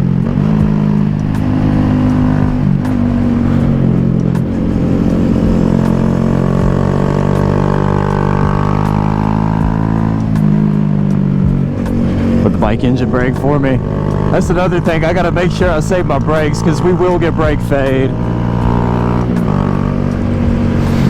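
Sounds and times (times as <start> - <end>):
motorcycle engine pulling: 0.0 - 21.0.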